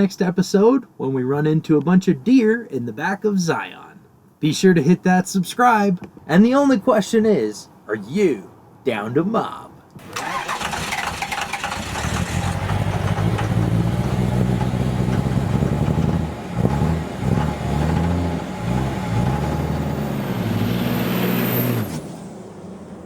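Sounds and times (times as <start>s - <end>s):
truck engine revving: 10.0s - 22.3s.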